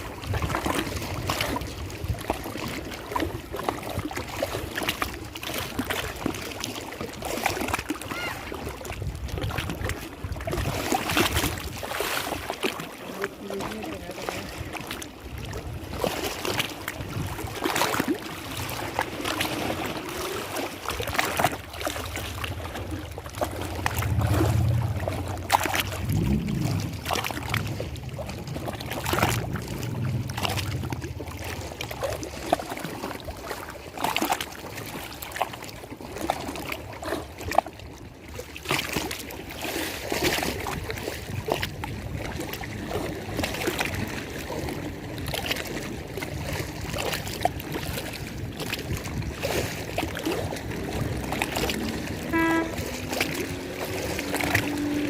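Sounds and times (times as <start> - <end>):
lake water lapping: 0.0 - 55.0
small splashes: 0.0 - 55.0
low hum: 22.3 - 32.3.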